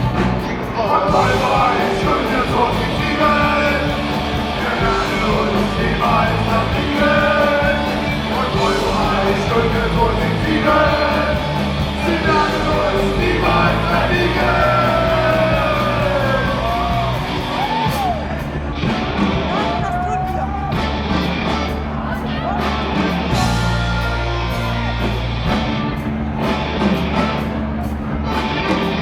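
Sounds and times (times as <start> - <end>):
person singing and shouting: 0.0 - 18.5, 19.4 - 21.0, 22.1 - 25.2
live rock band playing: 0.0 - 29.0.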